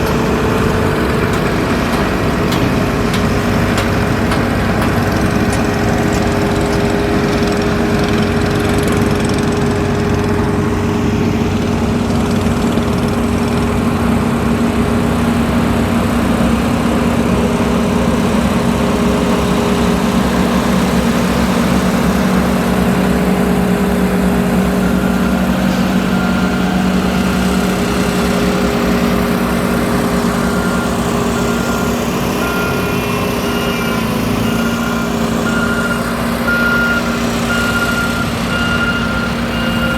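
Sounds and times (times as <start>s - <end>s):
heavy diesel engines running: 0.0s - 39.9s
vehicle backup alarm beeping: 22.4s - 39.9s.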